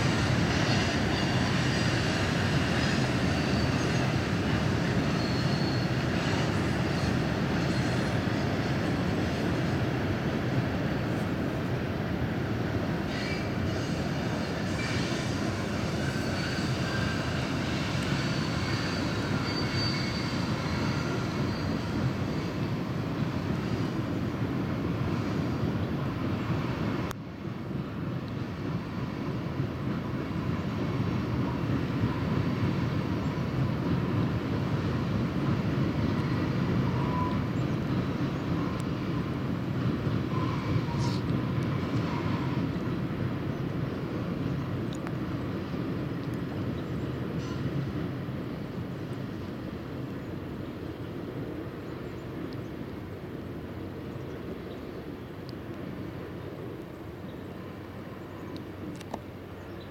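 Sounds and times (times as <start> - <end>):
faint brief squeals: 5.1 - 8.1, 13.1 - 15.4, 17.8 - 22.0.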